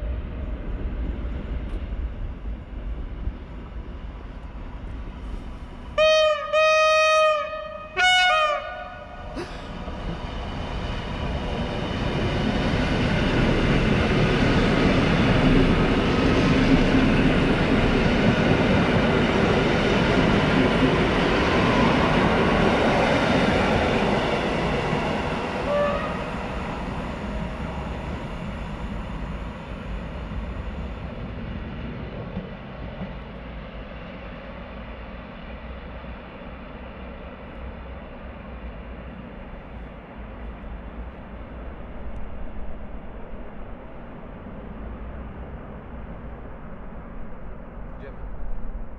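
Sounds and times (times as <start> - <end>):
train wheel and track rumble: 0.0 - 48.9
train horn: 6.0 - 9.4, 25.6 - 26.4.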